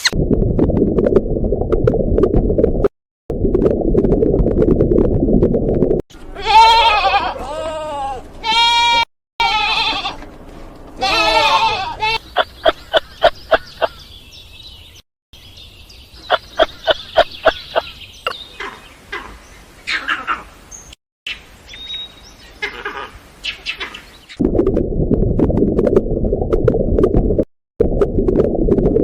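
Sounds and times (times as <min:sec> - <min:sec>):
goat bleating: 0:06.3 - 0:10.2, 0:11.0 - 0:12.2.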